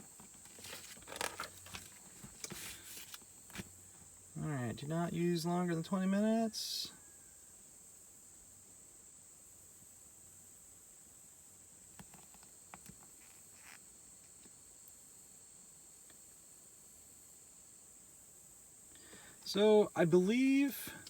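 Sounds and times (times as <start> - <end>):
soft clicks and rustles: 0.0 - 4.1, 11.8 - 14.6
faint high-pitched hiss: 0.0 - 21.0.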